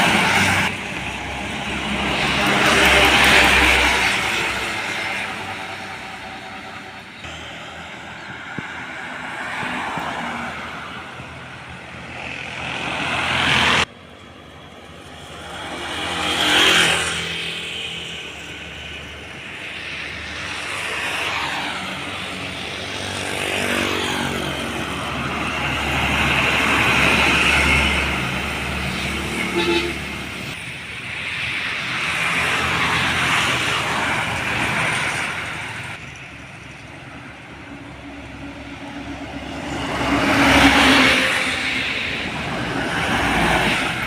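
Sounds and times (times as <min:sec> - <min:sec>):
trucks and buses passing: 0:00.0 - 0:44.0.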